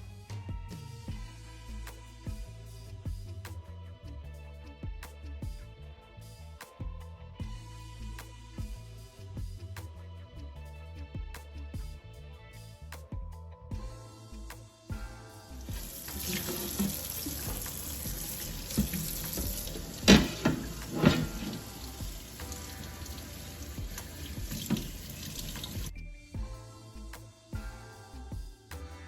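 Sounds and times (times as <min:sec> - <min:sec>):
tap running water into sink: 0:15.7 - 0:25.9
object knocking on sink: 0:16.3 - 0:21.7, 0:23.8 - 0:25.1.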